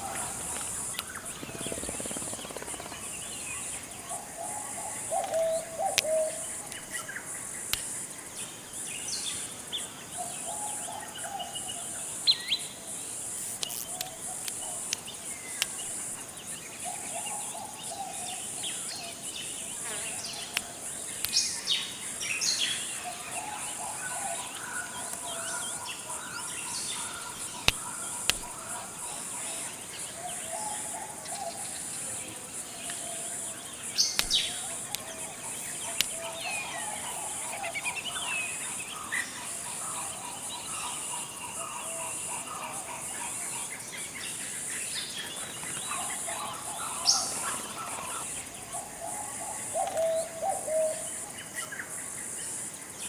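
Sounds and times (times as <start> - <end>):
birds chirping and calling: 0.0 - 7.7, 13.6 - 31.7, 32.8 - 43.8, 45.0 - 51.2
high-pitched insect hum: 0.0 - 53.0
sharp clicks: 0.2 - 3.2, 13.4 - 15.8, 27.1 - 28.6, 34.0 - 35.1.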